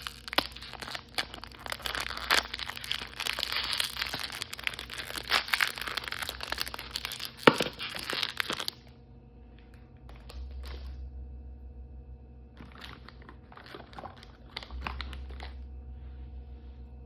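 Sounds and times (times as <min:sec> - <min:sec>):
plastic wrapper crinkling: 0:00.0 - 0:08.8, 0:12.6 - 0:15.6
wrapper snapping: 0:00.0 - 0:08.8.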